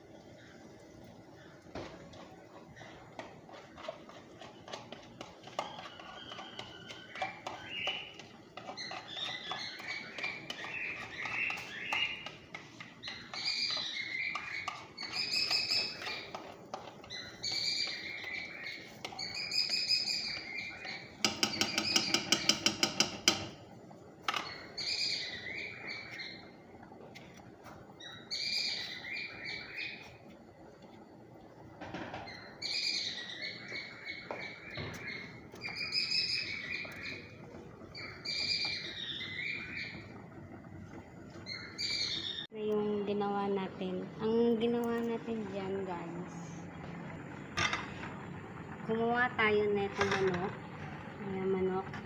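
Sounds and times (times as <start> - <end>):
bird chirping: 13.0 - 16.4, 28.0 - 30.1, 32.2 - 40.2, 41.4 - 42.5.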